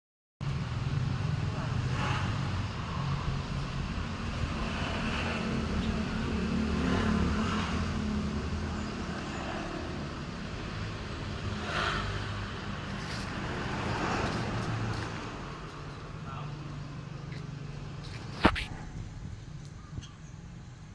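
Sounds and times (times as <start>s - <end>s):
road traffic rumble: 0.4s - 20.9s.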